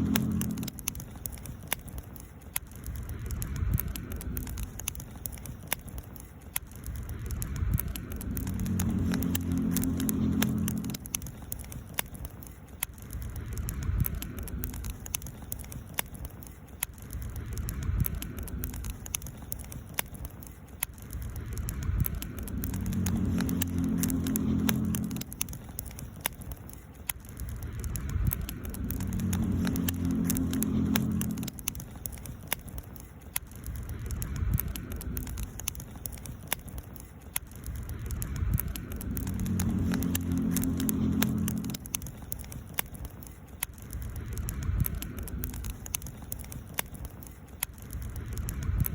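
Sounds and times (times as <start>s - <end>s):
low rumble: 0.0s - 6.0s, 6.6s - 48.9s
campfire crackling and popping: 0.0s - 48.9s.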